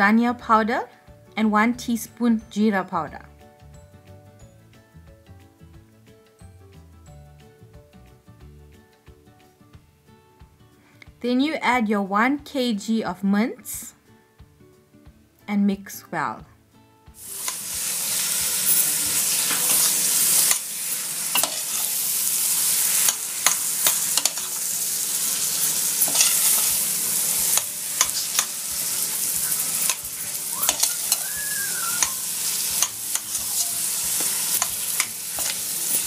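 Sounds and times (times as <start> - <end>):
meat sizzling in hot oil: 17.2 - 36.0
metal spoon scraping a pot: 18.7 - 20.7, 21.3 - 22.0, 22.6 - 24.6, 25.3 - 31.2, 32.4 - 36.0.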